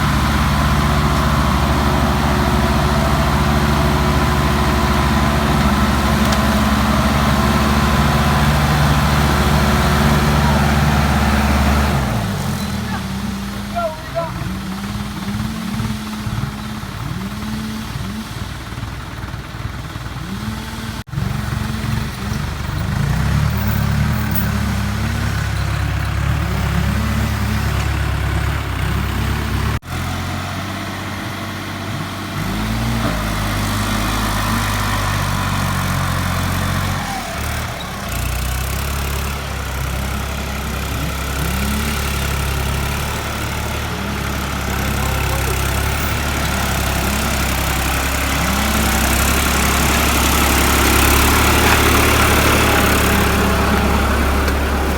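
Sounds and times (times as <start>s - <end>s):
tractor engines labouring: 0.0s - 54.9s.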